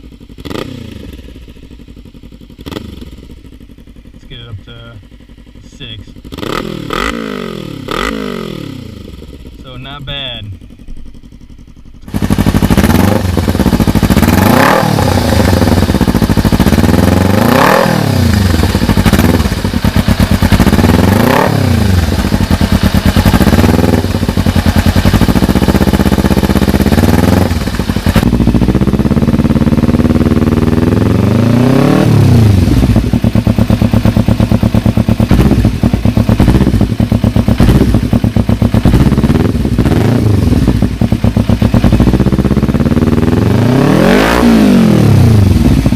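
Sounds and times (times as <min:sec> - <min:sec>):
motorcycle engine revving and idling: 0:00.0 - 0:45.9.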